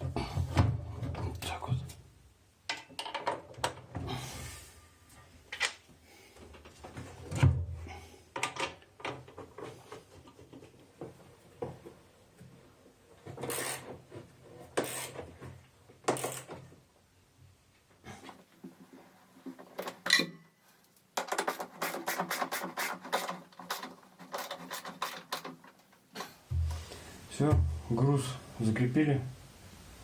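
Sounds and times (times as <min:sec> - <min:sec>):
knocks and clicks of machine parts: 0:02.7 - 0:03.9, 0:21.2 - 0:21.7
heavy thump: 0:26.5 - 0:28.0.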